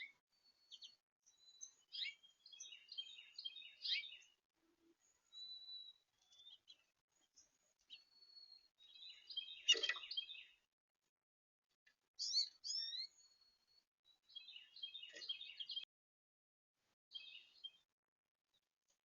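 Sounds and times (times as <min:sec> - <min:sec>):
small songbirds twittering: 0:00.0 - 0:04.4, 0:05.0 - 0:10.7, 0:12.2 - 0:15.9, 0:17.1 - 0:17.9.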